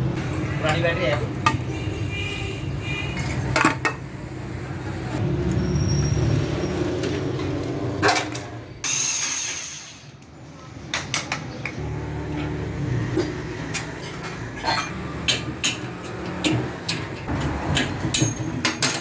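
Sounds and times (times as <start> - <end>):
metal tools clinking and knocking: 13.7 - 19.0.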